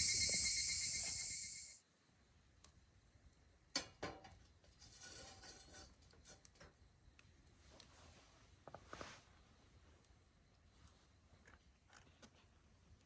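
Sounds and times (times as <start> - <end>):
fire hissing: 0.0 - 1.8.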